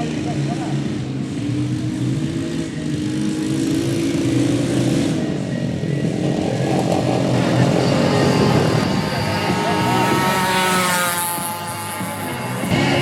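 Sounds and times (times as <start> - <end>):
motorcycle engines running: 0.0 - 13.0.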